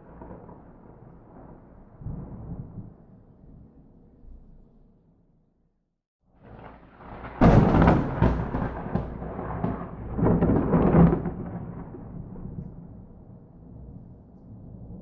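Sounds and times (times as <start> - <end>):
thunder crack: 0.0 - 2.8, 6.5 - 15.0
rolling thunder rumble: 0.0 - 3.8, 6.4 - 15.0.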